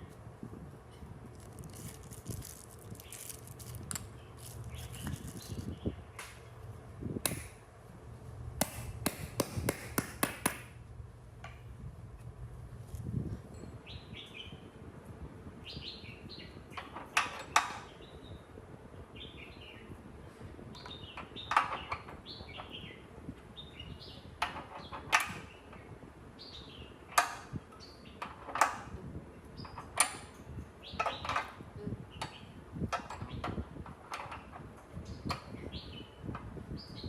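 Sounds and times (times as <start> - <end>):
steady low background noise: 0.0 - 37.0
sharp knocks: 7.2 - 7.6, 8.6 - 10.8.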